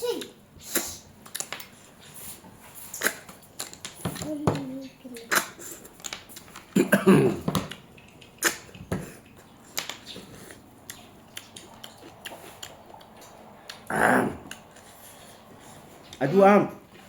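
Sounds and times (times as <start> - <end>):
chewing with clicks and smacks: 2.9 - 6.8, 7.5 - 16.2.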